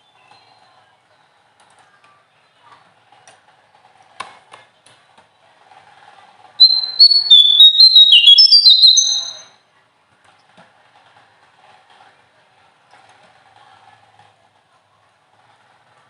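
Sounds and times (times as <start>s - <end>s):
songbird singing: 6.6s - 9.5s.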